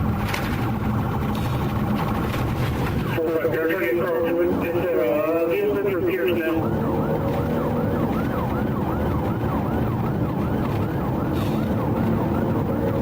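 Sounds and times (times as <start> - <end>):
car engine and tyres: 0.0 - 13.0
police siren yelping: 2.9 - 13.0.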